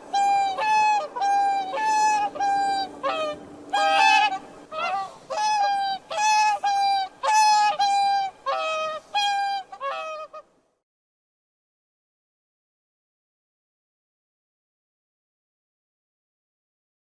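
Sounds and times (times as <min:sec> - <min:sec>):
swan trumpeting calls: 0:00.0 - 0:10.5.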